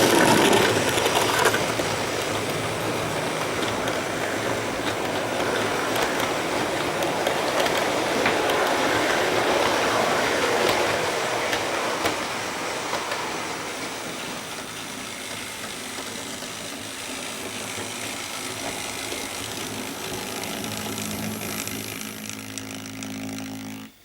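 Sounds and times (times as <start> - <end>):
model train wheels on rail joints: 0.0 - 24.0
low electric motor hum: 14.9 - 24.0.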